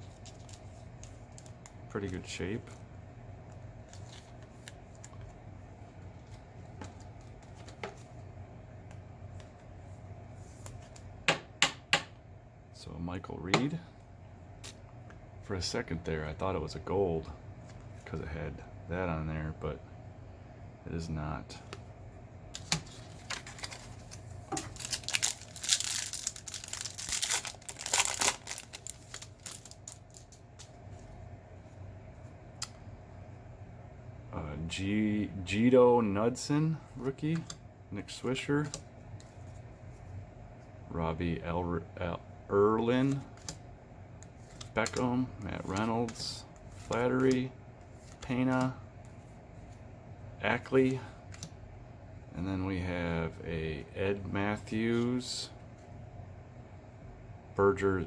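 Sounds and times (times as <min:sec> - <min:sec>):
low steady hum: 0:00.0 - 0:58.0
cards clicking and rustling: 0:22.5 - 0:30.8, 0:43.0 - 0:43.6, 0:44.2 - 0:48.7
wrapper tearing and crinkling: 0:23.4 - 0:30.4.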